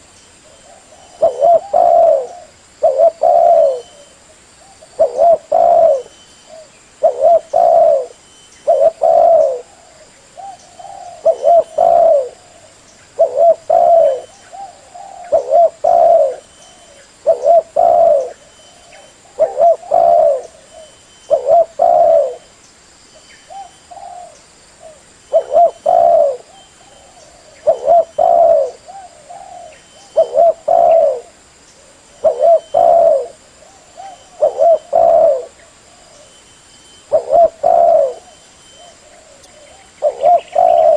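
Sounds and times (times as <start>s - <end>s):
dove cooing: 0.0s - 22.5s, 23.5s - 40.9s.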